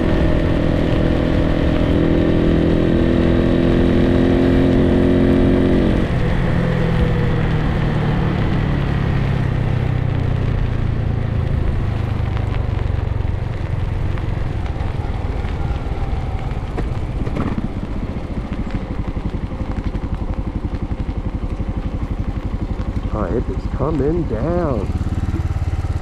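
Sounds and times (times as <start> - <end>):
motorcycle engine idling: 12.9 - 26.0.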